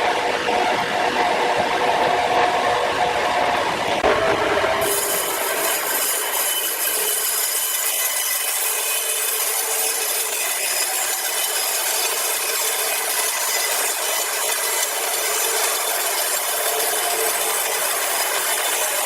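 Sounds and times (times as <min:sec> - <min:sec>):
saw blade cutting through log: 0:04.8 - 0:19.0.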